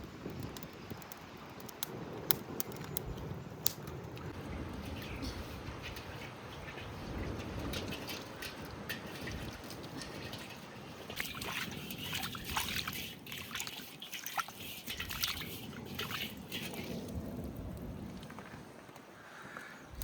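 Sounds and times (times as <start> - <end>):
small splashes and knocks: 4.4 - 17.5
water sloshing in a container: 4.4 - 18.4.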